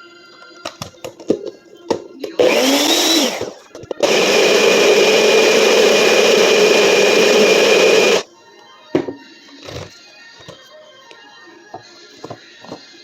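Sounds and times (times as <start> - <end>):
blender running: 2.4 - 8.2.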